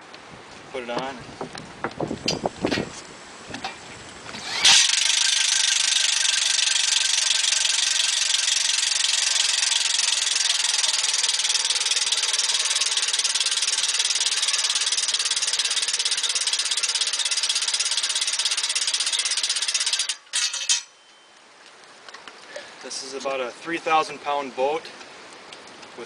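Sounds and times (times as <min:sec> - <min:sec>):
cordless drill buzzing under load: 0:04.3 - 0:20.1.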